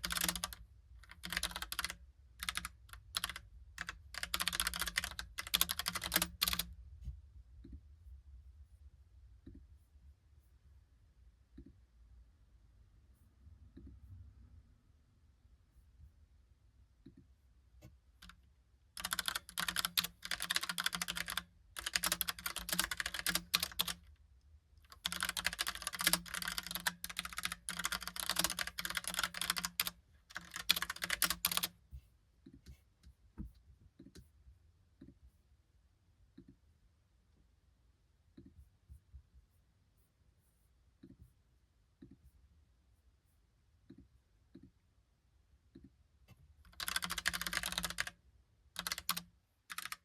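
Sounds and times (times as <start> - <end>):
mechanical keyboard typing: 0.0 - 6.7, 19.0 - 24.0, 24.8 - 31.8, 46.7 - 48.2, 48.8 - 50.0.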